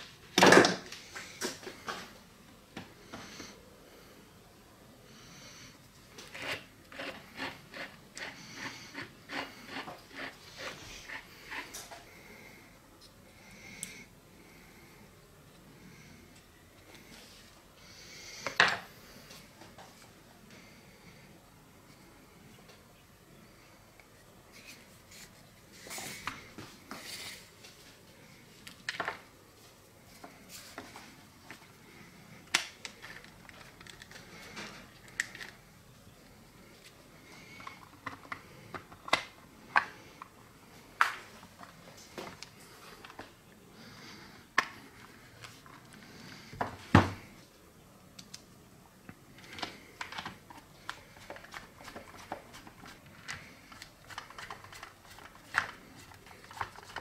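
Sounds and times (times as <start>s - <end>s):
plastic parts clicking and knocking: 49.4s - 52.5s.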